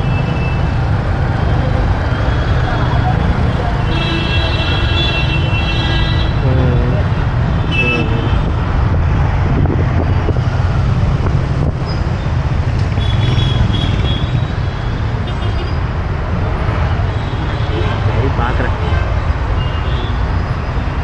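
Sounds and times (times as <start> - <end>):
vehicle horns honking: 3.8 - 6.5, 7.6 - 8.5, 13.0 - 14.4
motorbike engine and road rumble: 6.3 - 17.6.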